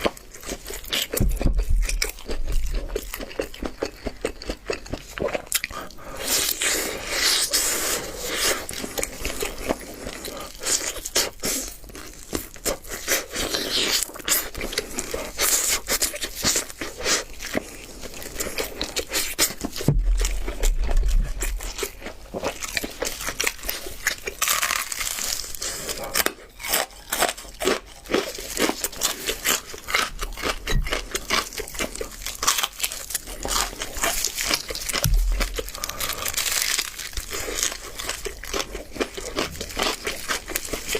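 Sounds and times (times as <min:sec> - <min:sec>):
chewing: 0:00.0 - 0:40.9
crispy chicken crunching: 0:00.0 - 0:40.9
dull low thump: 0:01.2 - 0:02.0, 0:19.8 - 0:21.9, 0:35.0 - 0:36.4.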